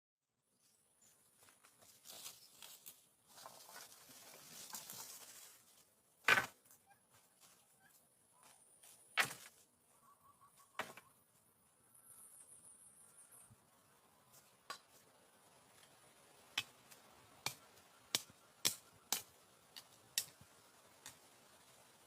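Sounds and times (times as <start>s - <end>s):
rustling and handling noise: 1.3s - 7.8s.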